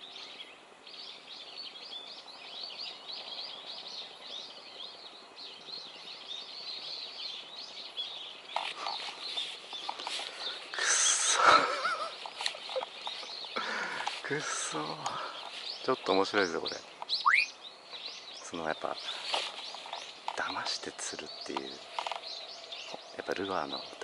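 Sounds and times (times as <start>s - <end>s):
birds chirping: 0.0s - 24.0s
close rustling and clicks: 8.5s - 10.7s, 11.8s - 16.0s, 19.0s - 22.4s.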